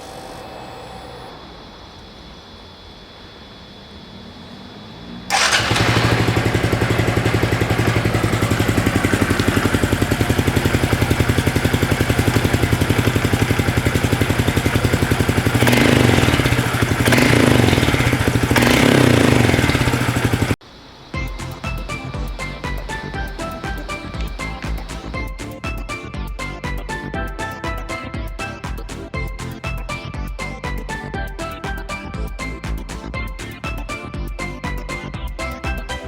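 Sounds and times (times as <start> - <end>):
motorcycle engine starting and idling: 3.6 - 36.0
motorcycle engine revving: 3.9 - 20.6, 21.2 - 25.3.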